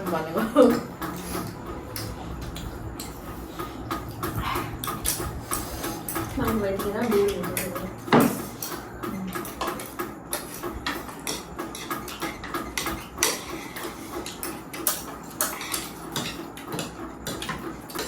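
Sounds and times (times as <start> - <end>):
utensils clinking against dishes: 0.0 - 18.0.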